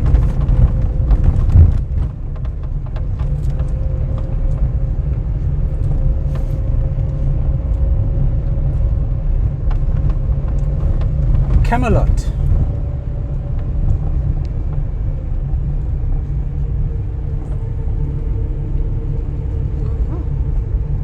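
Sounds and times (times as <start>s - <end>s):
engine and tyre rumble: 0.0s - 11.6s.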